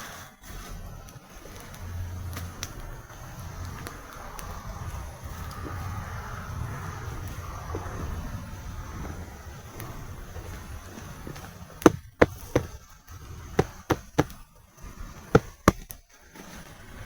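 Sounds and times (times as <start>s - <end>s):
sharp chopping knocks: 13.6s - 14.3s, 15.4s - 15.8s.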